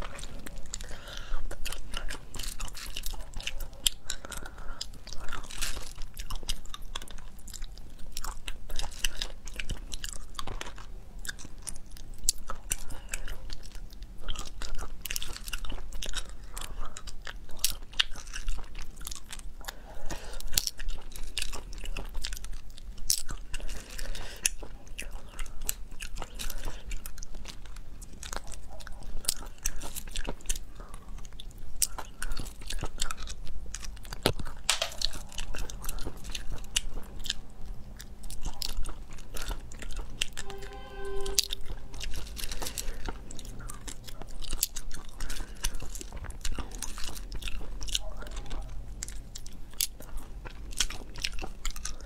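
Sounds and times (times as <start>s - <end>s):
wet chewing with sharp clicks: 0.0s - 40.4s, 42.1s - 52.0s.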